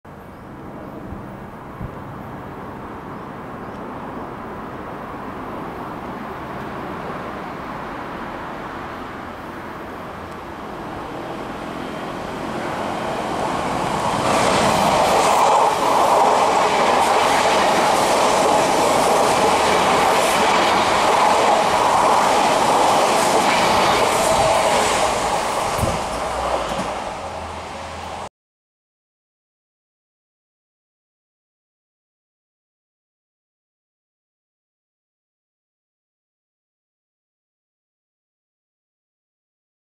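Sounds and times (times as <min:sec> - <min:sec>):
electric train passing at speed: 0:00.1 - 0:28.3.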